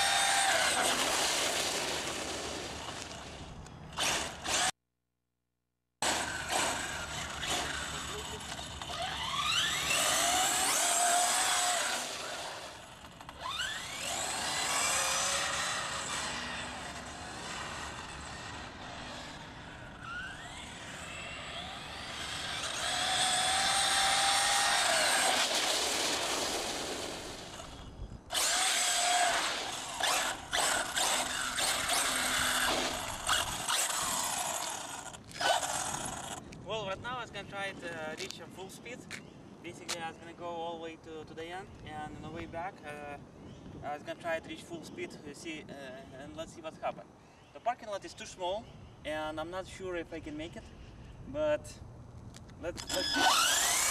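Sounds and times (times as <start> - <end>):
tyre noise on asphalt: 0.0 - 4.7, 6.0 - 36.7
electric motor whining: 6.0 - 36.4, 52.8 - 53.9.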